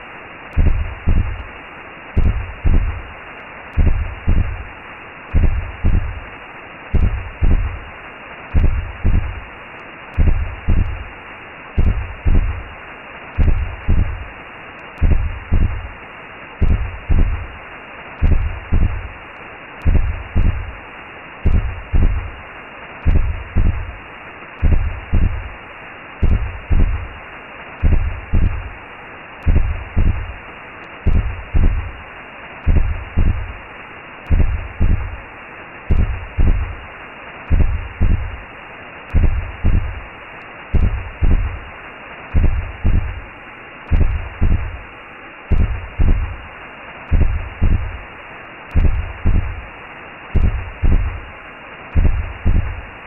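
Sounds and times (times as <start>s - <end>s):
steady whooshing hiss: 0.0s - 53.0s
slow heartbeat thumps: 0.5s - 1.5s, 2.2s - 3.1s, 3.7s - 4.7s, 5.3s - 6.3s, 6.9s - 7.9s, 8.5s - 9.5s, 10.1s - 11.1s, 11.8s - 12.7s, 13.4s - 14.3s, 15.0s - 16.0s, 16.6s - 17.6s, 18.2s - 19.2s, 19.8s - 20.8s, 21.4s - 22.4s, 23.0s - 24.0s, 24.6s - 25.6s, 26.2s - 27.2s, 27.8s - 28.8s, 29.4s - 30.4s, 31.0s - 32.0s, 32.6s - 33.6s, 34.3s - 35.2s, 35.9s - 36.8s, 37.5s - 38.4s, 39.1s - 40.1s, 40.7s - 41.7s, 42.3s - 43.3s, 43.9s - 44.9s, 45.5s - 46.5s, 47.1s - 48.0s, 48.7s - 49.7s, 50.4s - 51.3s, 51.9s - 52.9s.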